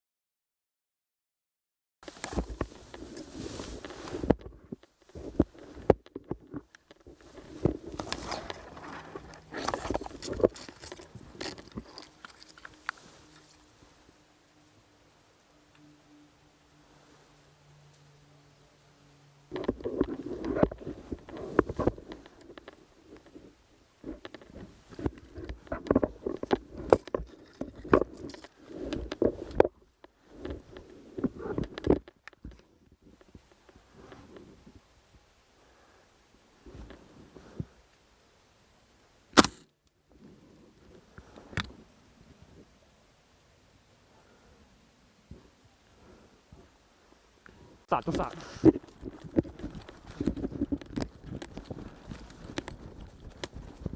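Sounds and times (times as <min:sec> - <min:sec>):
footsteps on rough ground: 0:02.0 - 0:13.6, 0:47.9 - 0:53.9
handling noise rustling and clicking: 0:02.0 - 0:14.0, 0:19.5 - 0:34.7, 0:47.4 - 0:53.9.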